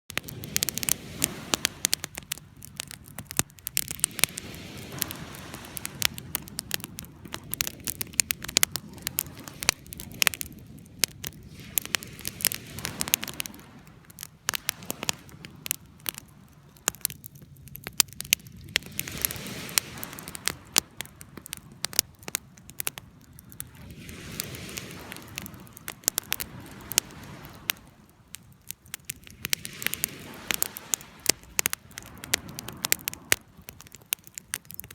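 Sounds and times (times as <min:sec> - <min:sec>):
campfire crackling and popping: 0:00.0 - 0:34.9
low rushing of flame: 0:00.1 - 0:34.9.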